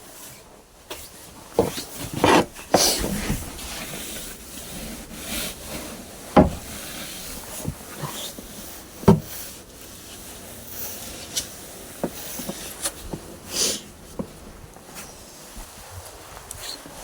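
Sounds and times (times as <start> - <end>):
brush sweeping snow off car: 2.1 - 12.8
heavy thump: 6.3 - 6.9, 9.1 - 9.4.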